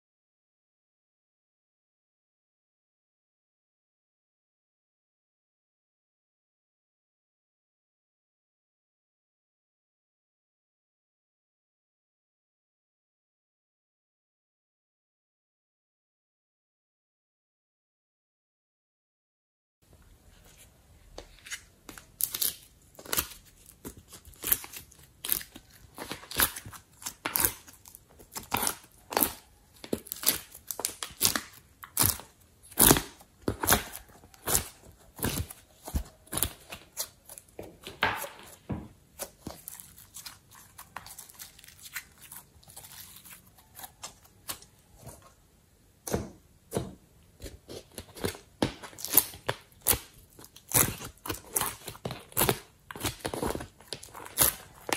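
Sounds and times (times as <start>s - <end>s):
slime crackling and popping: 22.0s - 37.9s, 39.2s - 44.7s, 47.9s - 54.9s.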